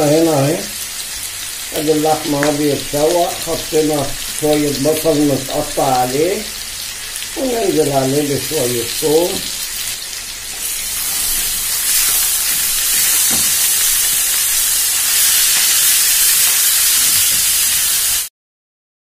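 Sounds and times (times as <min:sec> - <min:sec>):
meat sizzling in hot oil: 0:00.0 - 0:18.3
spatula stirring in pan: 0:10.5 - 0:16.5.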